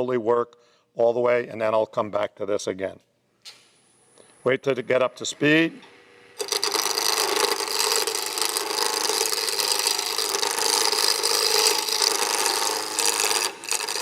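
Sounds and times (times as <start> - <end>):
chisel scraping wood on lathe: 6.4 - 14.0.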